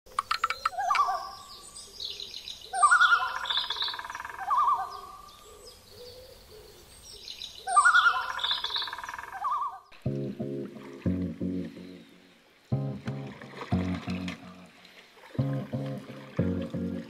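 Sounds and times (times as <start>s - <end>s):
bird hooting calls: 0.5s - 1.7s, 2.7s - 6.9s, 7.6s - 9.9s.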